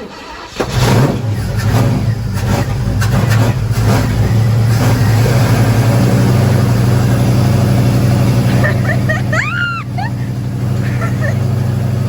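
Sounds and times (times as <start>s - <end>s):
pickup truck engine running: 0.3s - 12.0s.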